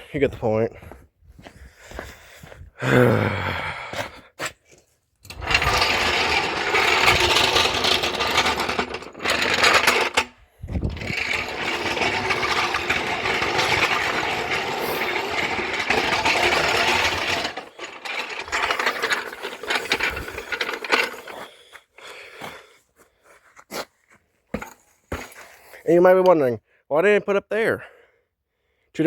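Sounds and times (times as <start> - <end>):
floor jack wheels rattling: 5.2 - 21.8, 24.6 - 25.4
metal clanks and knocks: 5.3 - 21.5, 24.6 - 25.4.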